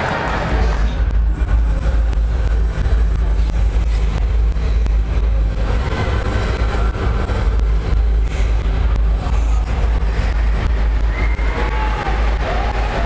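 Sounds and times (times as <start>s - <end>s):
loud car engine rumbling: 0.0s - 13.0s.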